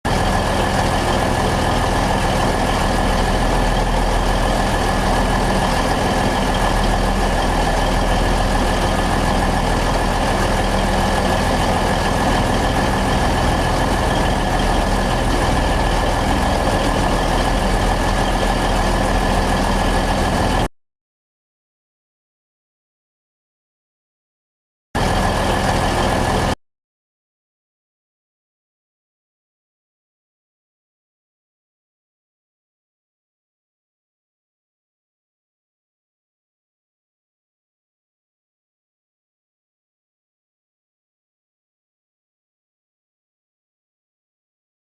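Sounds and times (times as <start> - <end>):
locomotive engine idling drone: 0.1 - 20.7, 25.0 - 26.6
steady high whine: 0.3 - 20.7.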